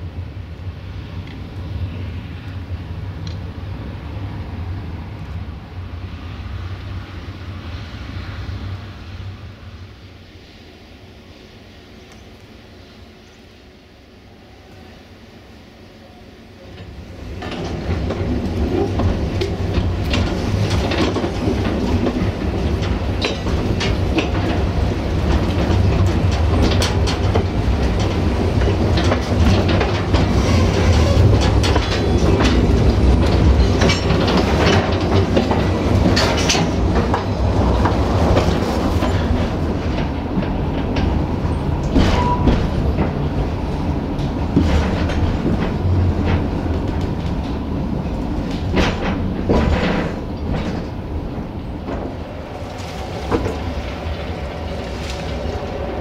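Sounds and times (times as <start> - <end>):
train rumbling along track: 0.0 - 56.0
wheels clickety-clack over joints: 16.7 - 56.0.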